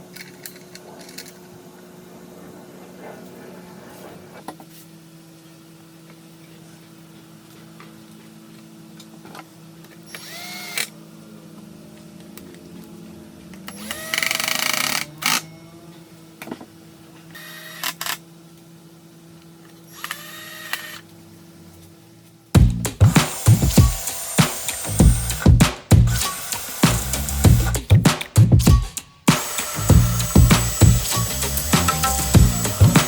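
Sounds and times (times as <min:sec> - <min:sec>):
electric power tool humming: 0:22.6 - 0:33.0
harsh bursts of tool working noise: 0:22.6 - 0:33.0.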